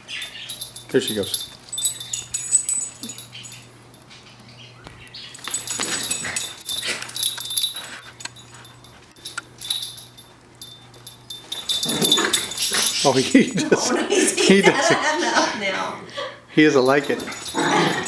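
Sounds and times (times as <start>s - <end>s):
dogs barking: 11.6s - 14.2s.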